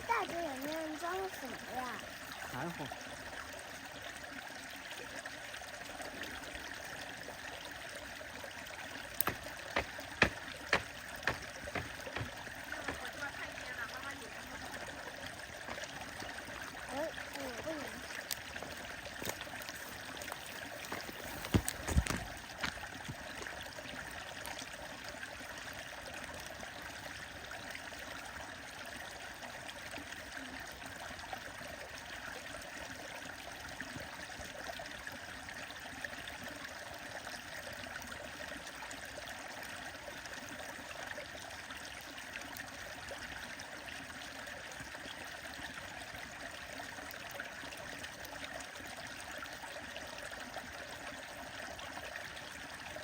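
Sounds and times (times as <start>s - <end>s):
stream water running: 0.0s - 53.0s
sharp knocks: 9.2s - 13.2s.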